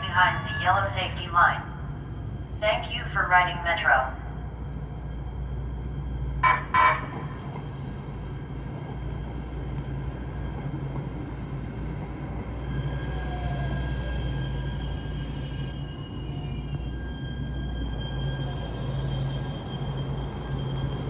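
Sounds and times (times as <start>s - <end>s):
faint train whine: 0.0s - 21.0s
train horn toots: 6.4s - 7.4s.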